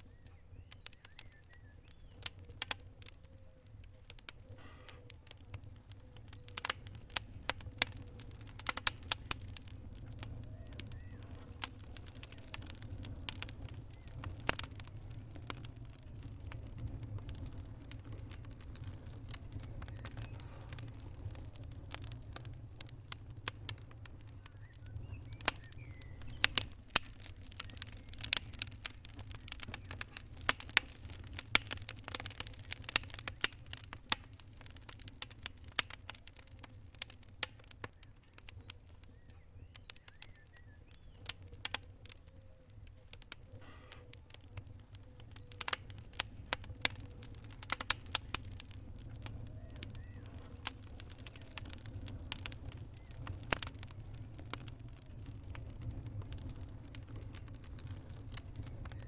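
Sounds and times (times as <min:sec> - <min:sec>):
fire crackling and popping: 0:00.0 - 0:59.0.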